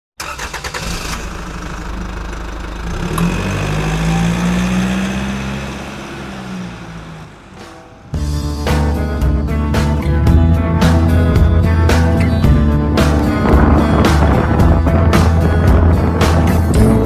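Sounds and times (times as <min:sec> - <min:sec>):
motorcycle engine revving: 0:02.7 - 0:09.0, 0:11.9 - 0:17.0
music: 0:07.5 - 0:17.0.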